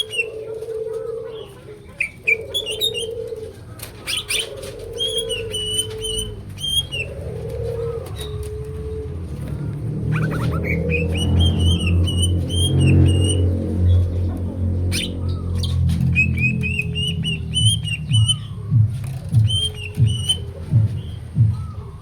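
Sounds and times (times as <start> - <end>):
bird whistling song: 4.0 - 7.2, 10.1 - 13.6, 14.9 - 22.0
steady low hum: 5.6 - 22.0.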